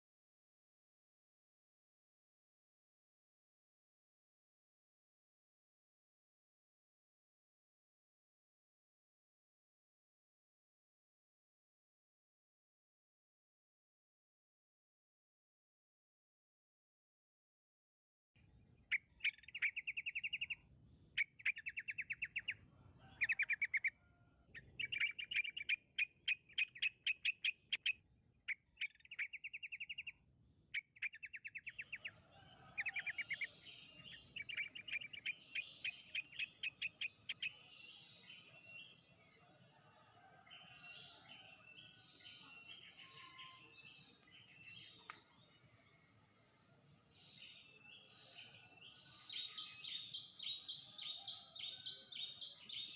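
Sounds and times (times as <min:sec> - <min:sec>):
birds chattering calls: 0:23.2 - 0:23.9, 0:24.6 - 0:30.1.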